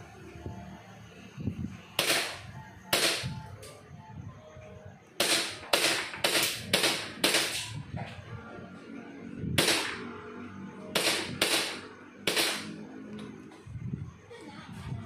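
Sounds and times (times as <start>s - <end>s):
airsoft pistol shots: 2.0s - 3.4s, 5.2s - 7.8s, 9.6s - 10.1s, 11.0s - 12.8s.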